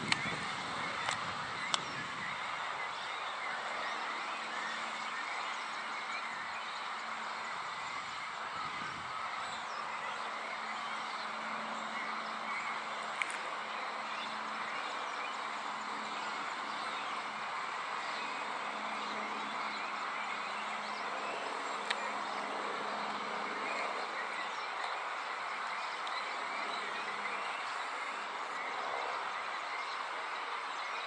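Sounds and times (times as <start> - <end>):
outdoor background noise: 0.0 - 31.0
sharp clicks: 1.0 - 1.9.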